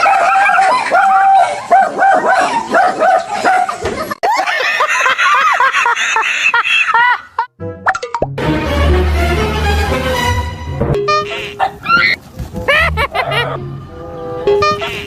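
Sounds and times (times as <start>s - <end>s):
dog barking and yipping: 0.0s - 3.8s, 11.3s - 13.6s.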